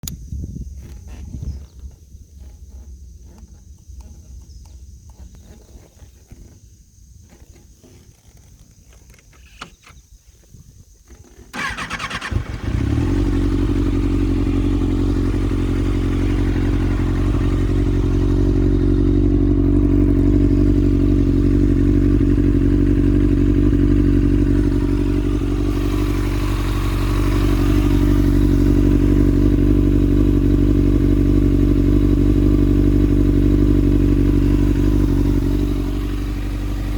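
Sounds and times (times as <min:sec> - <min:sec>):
motorcycle engine idling: 0:00.1 - 0:36.9
starter motor cranking: 0:11.4 - 0:13.7, 0:24.9 - 0:29.1.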